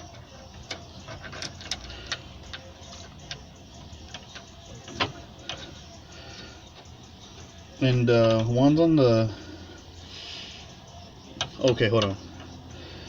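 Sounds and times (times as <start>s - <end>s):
metal tools clicking and tapping: 0.0s - 5.9s, 11.2s - 12.7s.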